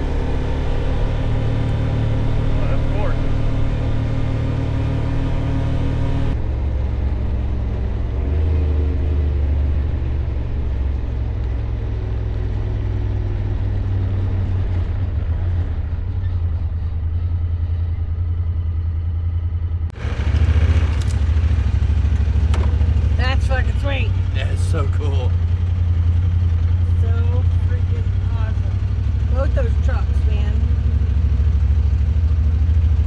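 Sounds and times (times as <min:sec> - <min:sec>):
utility vehicle engine droning: 0:00.0 - 0:33.0.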